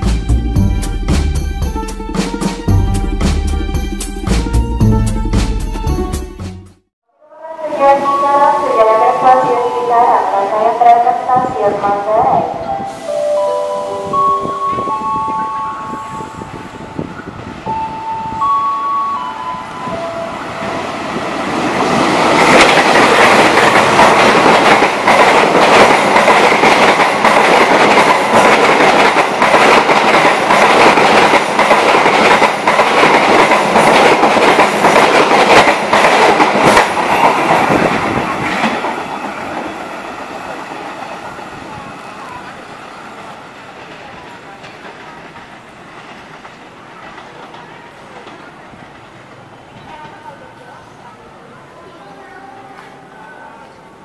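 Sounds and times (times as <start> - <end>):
passenger train passing: 0.0 - 6.7, 7.3 - 54.0
chime-like notes: 12.7 - 17.1.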